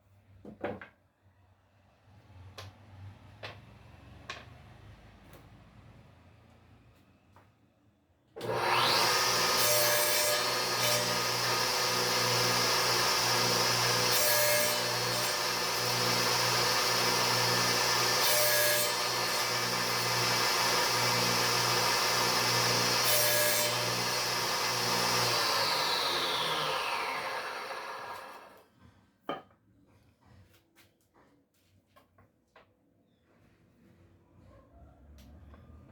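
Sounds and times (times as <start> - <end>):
knock: 0.4 - 0.9
saw blade winding down: 8.4 - 28.6
electric saw cutting wood: 8.4 - 28.7.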